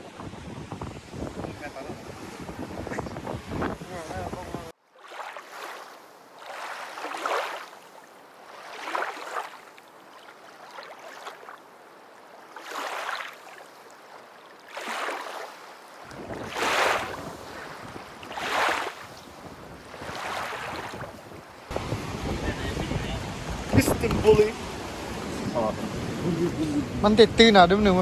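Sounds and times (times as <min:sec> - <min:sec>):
wind buffeting microphone: 0:00.0 - 0:04.7, 0:16.0 - 0:28.0
sea waves splashing on shore: 0:00.1 - 0:28.0.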